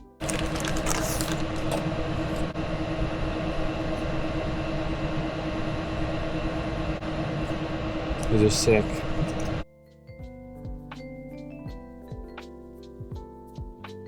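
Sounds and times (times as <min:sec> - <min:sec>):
constant low hum: 0:00.2 - 0:09.6.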